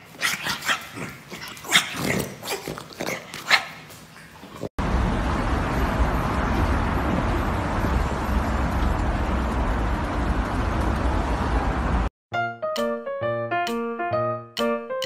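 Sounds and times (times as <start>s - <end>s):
street traffic rumble: 4.8s - 12.1s.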